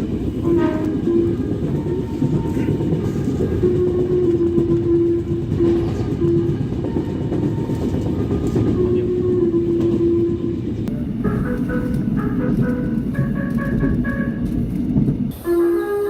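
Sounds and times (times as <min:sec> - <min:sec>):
train rumble and rail clatter: 0:00.0 - 0:16.0
train horn: 0:00.4 - 0:14.6, 0:15.3 - 0:16.0
higher tones: 0:10.9 - 0:14.6.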